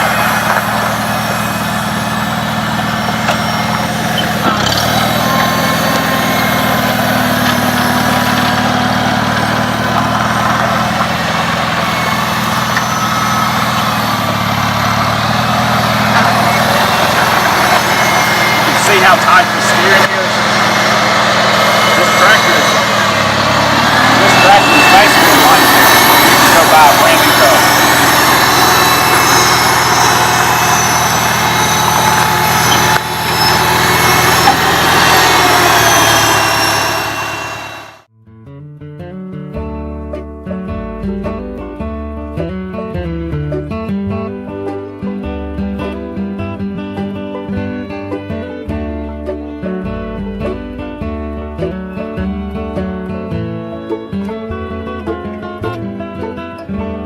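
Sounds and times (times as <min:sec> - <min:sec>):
tractor engine running: 0:00.0 - 0:38.1, 0:40.0 - 0:57.0.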